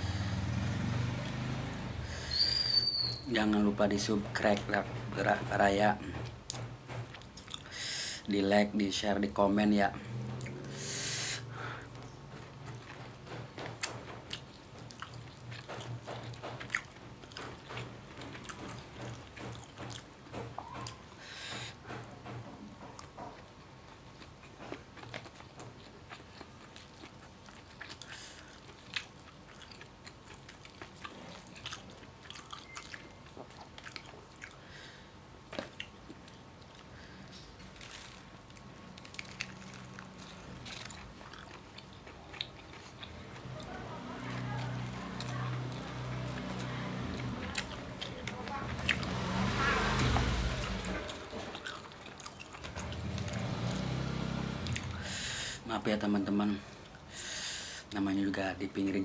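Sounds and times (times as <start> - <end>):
motorbikes passing: 0.0 - 2.6, 9.6 - 14.2, 43.0 - 55.6
person chewing food: 6.0 - 8.3, 10.1 - 55.5.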